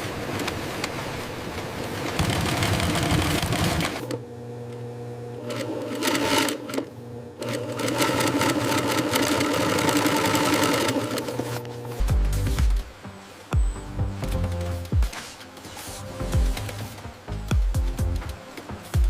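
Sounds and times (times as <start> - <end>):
sewing machine running: 2.2 - 4.2, 5.4 - 11.6.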